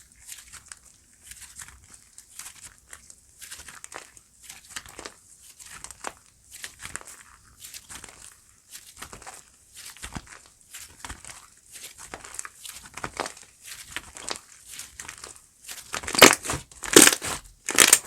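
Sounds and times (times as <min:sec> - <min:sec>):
slime squished by hand crackling: 0:15.8 - 0:18.0.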